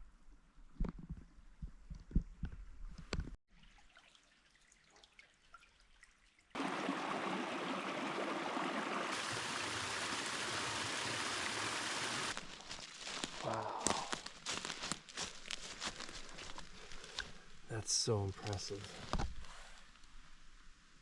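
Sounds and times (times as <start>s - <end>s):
creek water running: 3.5s - 18.9s.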